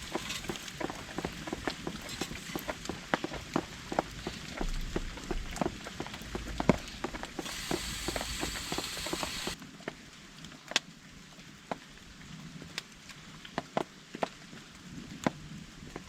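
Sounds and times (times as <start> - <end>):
rain on a tarp: 0.0 - 16.0
drops ticking: 7.4 - 9.6.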